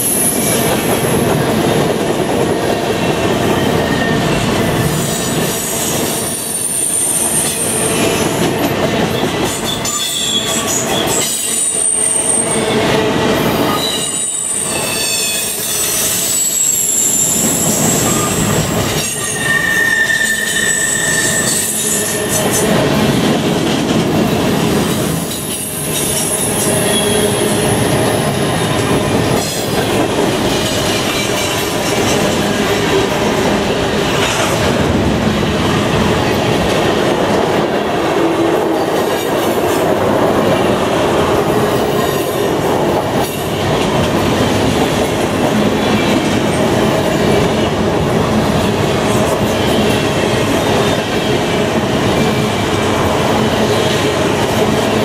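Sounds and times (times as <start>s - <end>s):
train wheels rolling on rails: 0.0s - 55.0s
high-pitched wheel squeals: 13.7s - 22.4s.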